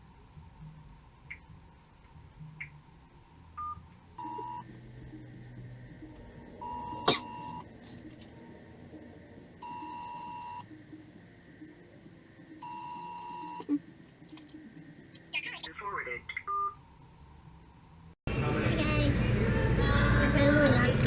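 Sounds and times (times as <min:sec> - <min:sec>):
phone ringback tone: 0:03.6 - 0:04.7, 0:06.6 - 0:07.6, 0:09.6 - 0:10.6, 0:12.6 - 0:13.7.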